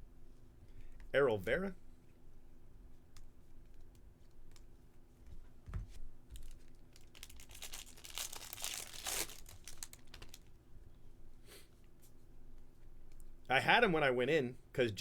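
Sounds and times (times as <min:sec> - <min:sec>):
foil wrapper crinkling and tearing: 0:06.4 - 0:10.5.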